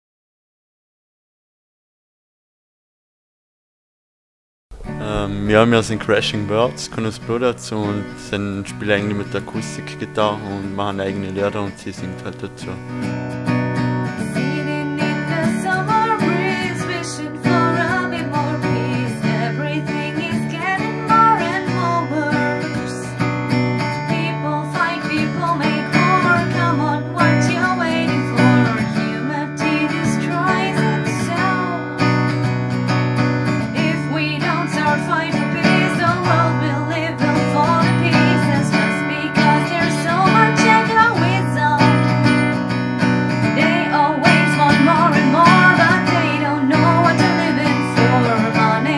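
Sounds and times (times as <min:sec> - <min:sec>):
acoustic guitar strumming: 0:04.7 - 0:48.9
woman singing: 0:13.8 - 0:32.5, 0:33.5 - 0:42.8, 0:43.4 - 0:48.9.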